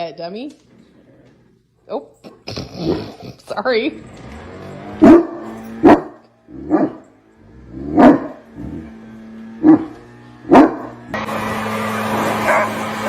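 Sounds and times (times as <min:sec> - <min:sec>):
dog barking: 0:05.0 - 0:07.0, 0:07.9 - 0:08.4, 0:09.6 - 0:10.9, 0:12.2 - 0:13.0.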